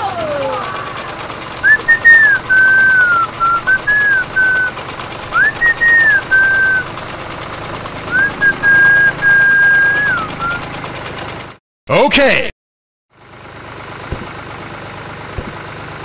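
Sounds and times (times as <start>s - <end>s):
person whistling a slow tune: 1.6s - 4.7s, 5.3s - 6.9s, 8.1s - 10.6s.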